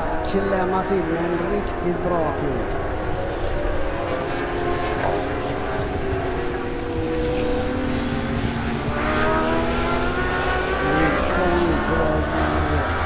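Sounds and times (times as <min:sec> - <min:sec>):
motorbike engine accelerating: 0:02.6 - 0:13.0.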